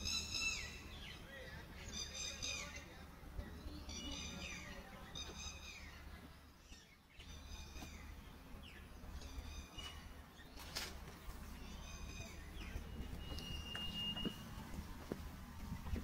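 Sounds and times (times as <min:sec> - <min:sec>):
bird calling: 0:00.0 - 0:03.0, 0:11.5 - 0:14.5.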